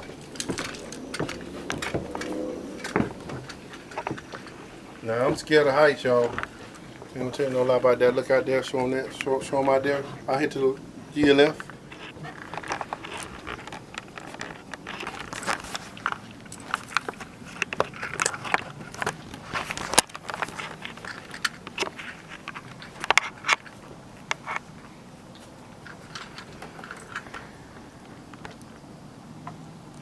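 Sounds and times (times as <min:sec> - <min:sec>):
footsteps on wooden boards: 0:00.0 - 0:23.2.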